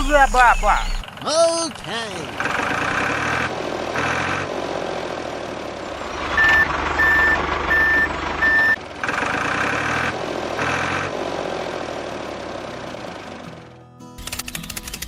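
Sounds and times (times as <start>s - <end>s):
motor running: 0.4s - 4.8s, 5.7s - 11.3s
vehicle reversing alarm beeps: 5.9s - 8.8s.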